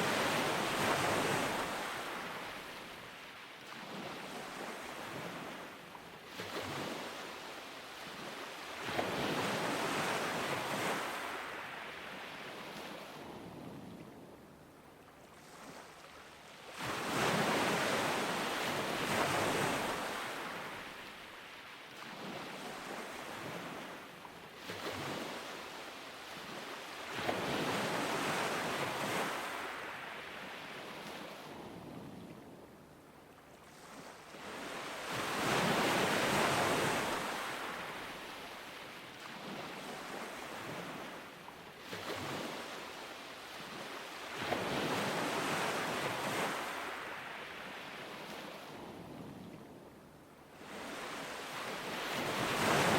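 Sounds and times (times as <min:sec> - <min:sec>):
ocean surf breaking on beach: 0:00.0 - 0:02.8, 0:33.8 - 0:38.4, 0:50.6 - 0:52.9.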